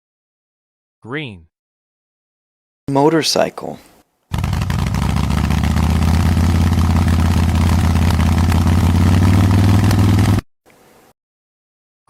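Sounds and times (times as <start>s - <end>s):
motorcycle engine running: 4.3s - 10.4s.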